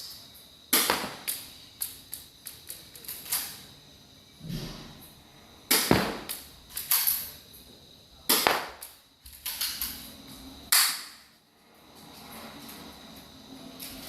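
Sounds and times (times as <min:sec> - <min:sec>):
airsoft pistol shots: 0:00.7 - 0:01.4, 0:05.7 - 0:06.4, 0:08.3 - 0:08.9, 0:10.7 - 0:11.2.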